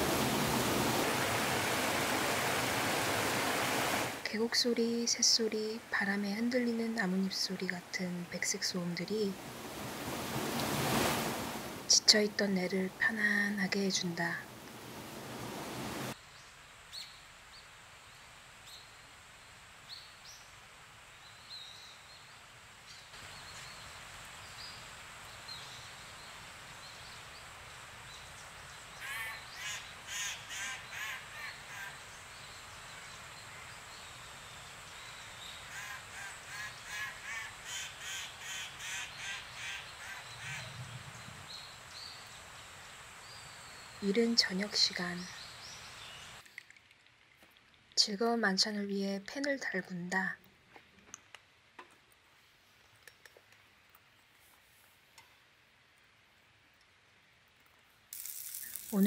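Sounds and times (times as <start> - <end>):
rushing hiss: 0.0 - 4.2, 9.4 - 11.9, 14.5 - 16.2, 58.1 - 59.0
bird harsh calls: 29.0 - 33.9, 35.3 - 40.8.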